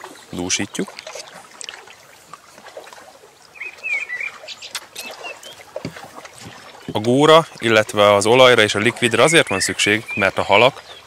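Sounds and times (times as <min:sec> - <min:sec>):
small bird twittering: 0:03.5 - 0:05.6.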